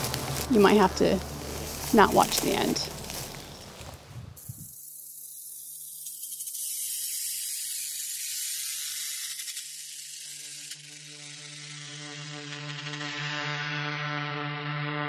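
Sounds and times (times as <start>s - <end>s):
low buzzing drone: 0.0s - 6.5s, 9.7s - 15.0s
airy hissing layer: 4.2s - 12.7s.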